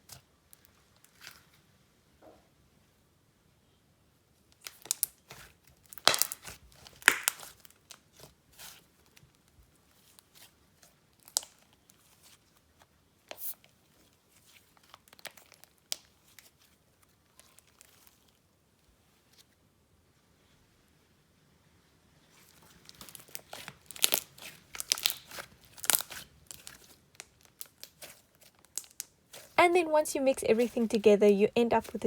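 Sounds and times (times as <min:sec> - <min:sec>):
slime crackling and popping: 0:04.6 - 0:18.4, 0:22.4 - 0:32.0.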